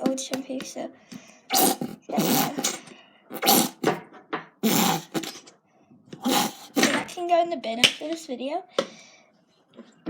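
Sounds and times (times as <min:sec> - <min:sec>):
shampoo bottle sputtering squirts: 0:01.5 - 0:04.0, 0:04.6 - 0:05.5, 0:06.2 - 0:07.2.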